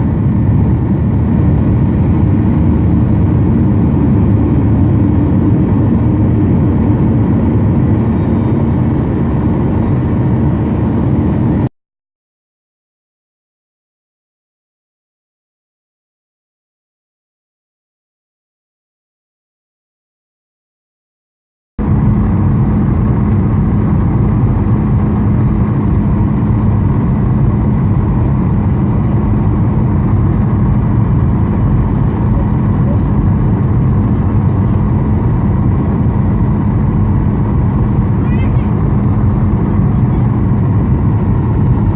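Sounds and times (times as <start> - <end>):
jet engine roar in cabin: 0.0 - 11.7, 21.8 - 41.9.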